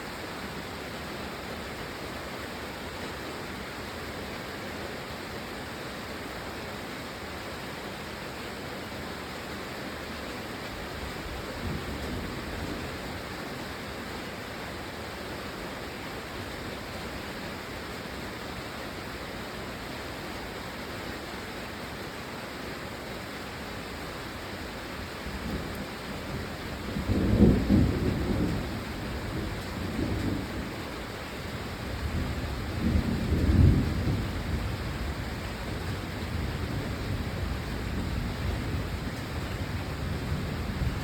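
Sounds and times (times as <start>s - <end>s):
rain falling: 0.0s - 41.0s
thunder rumbling: 25.4s - 31.0s.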